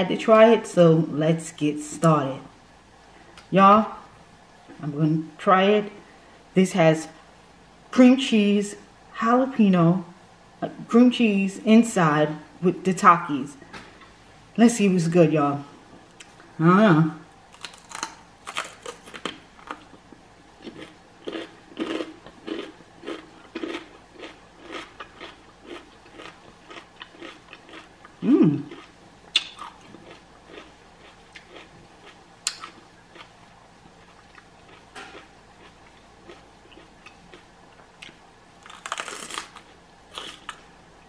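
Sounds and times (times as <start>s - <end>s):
crunchy chewing: 17.5s - 40.7s
person humming: 28.2s - 28.7s.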